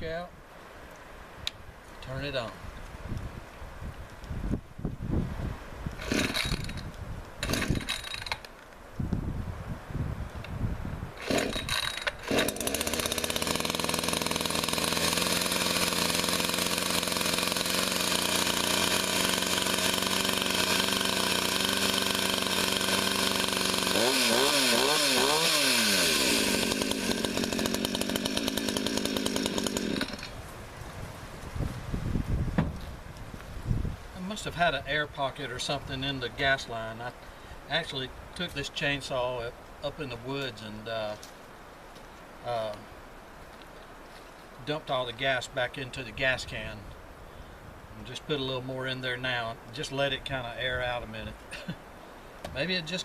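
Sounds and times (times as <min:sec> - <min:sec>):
chainsaw engine revving: 0:06.0 - 0:06.8, 0:07.4 - 0:08.5, 0:11.2 - 0:30.4
chainsaw pull-started: 0:06.0 - 0:08.5, 0:11.2 - 0:30.4.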